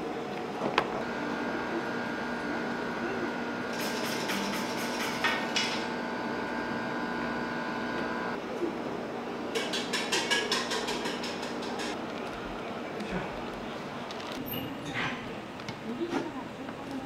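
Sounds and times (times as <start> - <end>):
appliance hum: 0.0 - 17.0
kitchen utensils clicking: 9.5 - 12.0.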